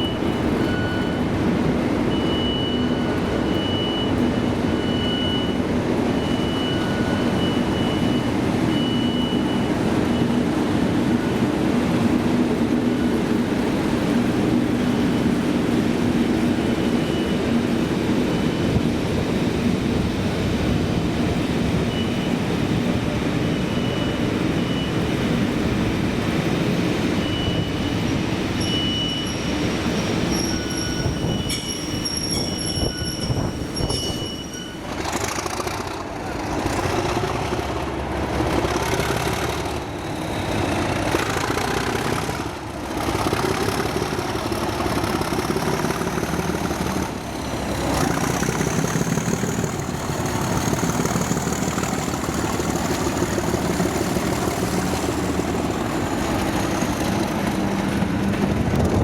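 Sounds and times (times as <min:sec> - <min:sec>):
train wheels rumbling on rails: 0:00.0 - 0:59.0
high-pitched wheel squeal: 0:28.6 - 0:35.5.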